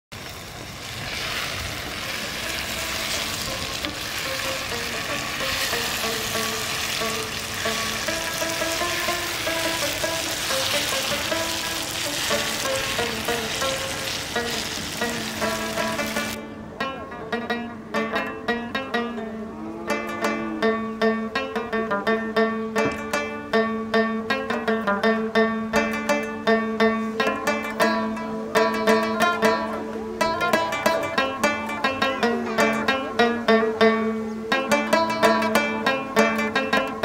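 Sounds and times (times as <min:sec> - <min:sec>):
vegetables sizzling in a wok: 0:00.1 - 0:16.4
plucked-string background music: 0:00.2 - 0:37.0.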